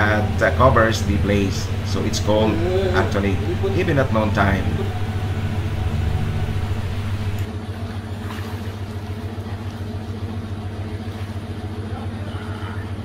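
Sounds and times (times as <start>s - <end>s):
motor humming: 0.0s - 7.7s.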